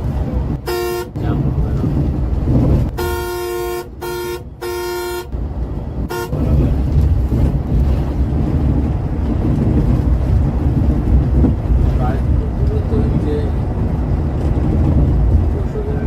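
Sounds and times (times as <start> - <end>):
bus engine rumble: 0.0 - 16.0
road noise: 0.0 - 16.0
vehicle horn honking: 0.6 - 1.2, 2.9 - 5.3, 6.1 - 6.6.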